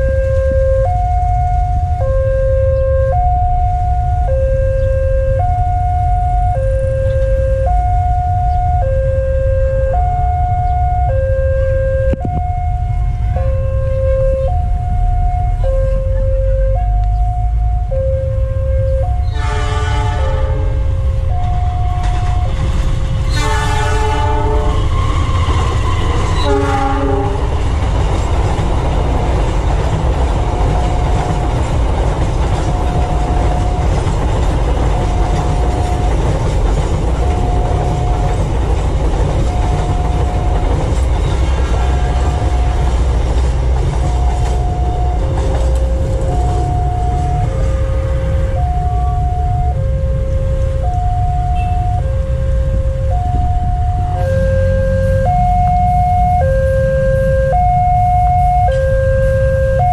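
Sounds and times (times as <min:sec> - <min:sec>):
level crossing alarm chime: 0:00.0 - 0:19.4, 0:39.3 - 0:41.0, 0:44.0 - 0:47.6, 0:48.6 - 0:59.9
train horn: 0:18.2 - 0:22.6, 0:23.2 - 0:27.5, 0:44.5 - 0:50.3, 0:51.5 - 0:52.0
train wheels rumbling on rails: 0:18.8 - 0:59.9.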